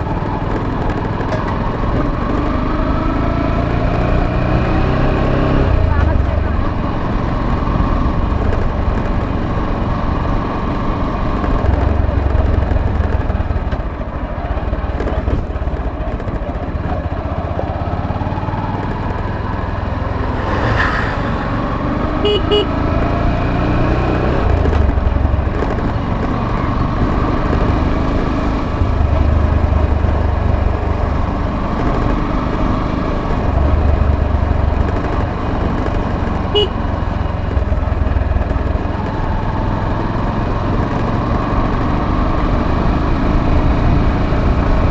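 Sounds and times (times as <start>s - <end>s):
motorcycle engine running: 0.0s - 44.9s
horn toots: 20.0s - 23.1s, 36.5s - 36.9s.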